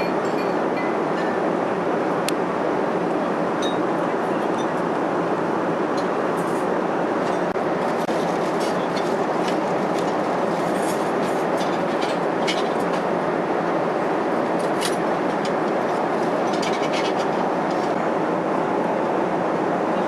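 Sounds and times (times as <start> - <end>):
airplane cabin air and engine noise: 0.0 - 20.0.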